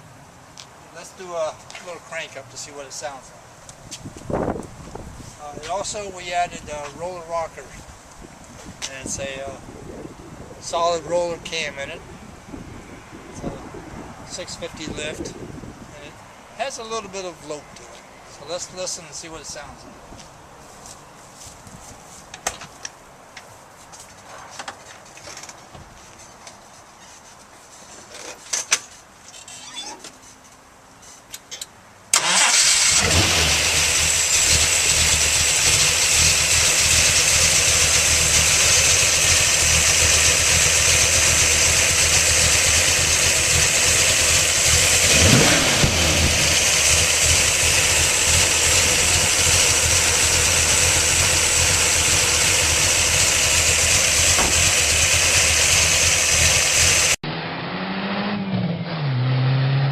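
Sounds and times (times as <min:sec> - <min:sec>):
car engine starting and idling: 0:32.1 - 0:57.6.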